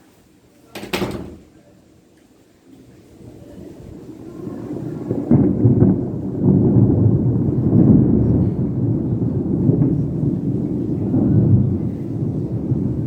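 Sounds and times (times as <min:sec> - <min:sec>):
thunder rumbling: 0:00.8 - 0:01.7, 0:03.2 - 0:13.0.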